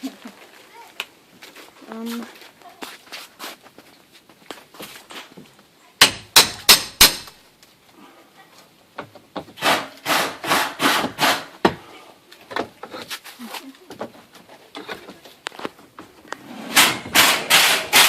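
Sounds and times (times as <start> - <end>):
hammer striking wood: 6.0 - 7.4, 9.0 - 11.8, 16.8 - 18.0.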